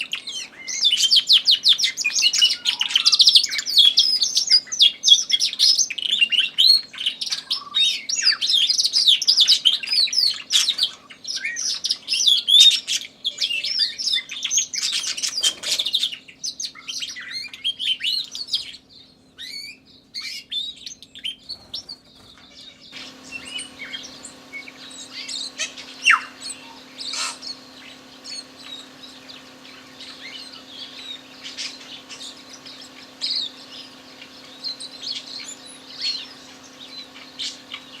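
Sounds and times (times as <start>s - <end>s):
tui singing: 21.3s - 38.0s
canary warbling and trilling: 21.5s - 38.0s
steady low hum: 21.5s - 38.0s.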